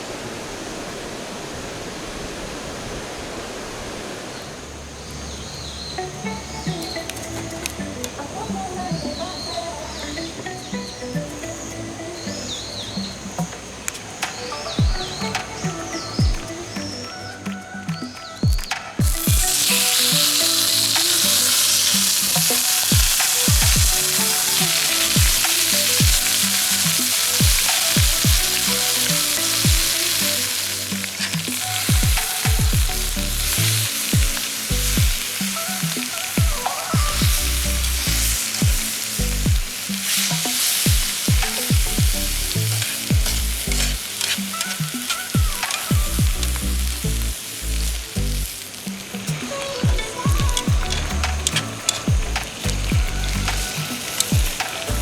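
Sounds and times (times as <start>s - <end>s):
background music: 5.6s - 55.0s
food sizzling in a pan: 19.0s - 55.0s.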